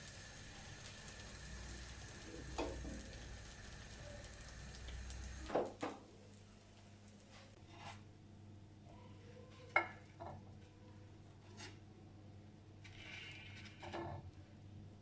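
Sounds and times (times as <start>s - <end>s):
food frying in a pan: 0.0s - 7.2s.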